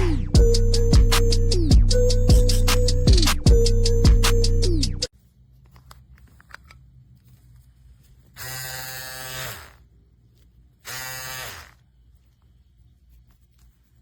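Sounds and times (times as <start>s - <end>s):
electric shaver motor buzzing: 8.4s - 9.8s, 10.8s - 11.8s.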